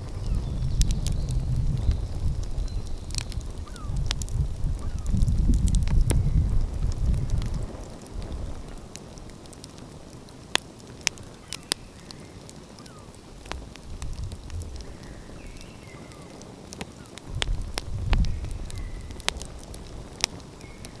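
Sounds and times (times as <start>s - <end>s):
sharp pops of fire: 0.0s - 21.0s
wood fire crackling: 0.0s - 21.0s.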